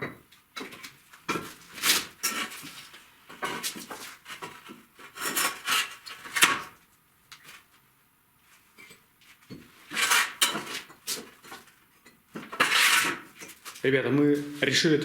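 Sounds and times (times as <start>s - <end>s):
bricklaying scraping and rubbing: 0.8s - 6.6s, 8.8s - 13.8s.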